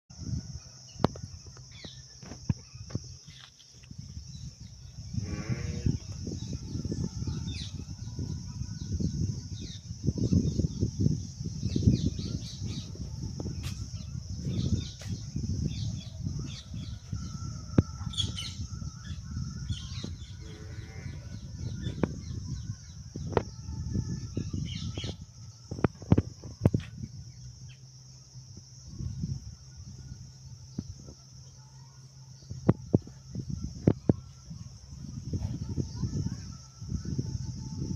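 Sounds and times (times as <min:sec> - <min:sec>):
low rumbling noise: 0:03.9 - 0:37.9.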